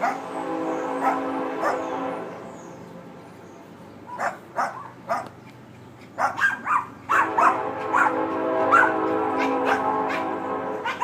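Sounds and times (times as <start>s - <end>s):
dog barking: 0.0s - 0.3s, 1.0s - 1.9s, 4.1s - 5.4s, 6.2s - 11.0s
steady train horn: 0.0s - 3.8s, 7.0s - 11.0s.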